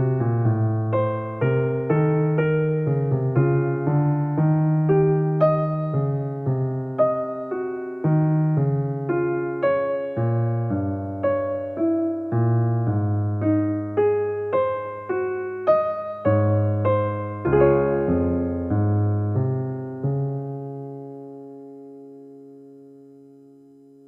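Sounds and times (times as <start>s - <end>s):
soft electric piano music: 0.0s - 24.0s.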